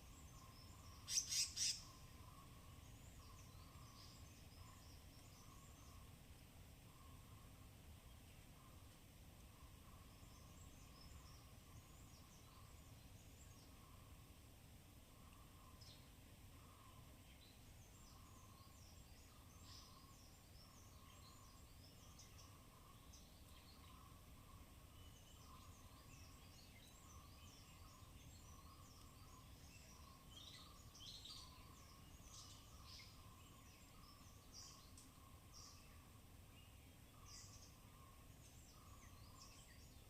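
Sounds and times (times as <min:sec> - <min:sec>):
high chirps of small animals: 0:00.4 - 0:02.1.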